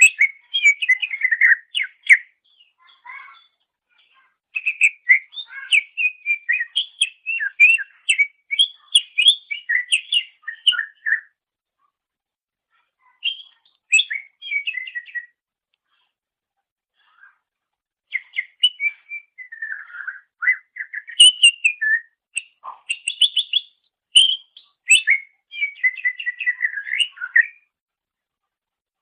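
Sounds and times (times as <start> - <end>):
bird singing chirps and whistles: 0.0 - 3.5, 4.6 - 11.4, 13.2 - 15.4, 18.1 - 27.7.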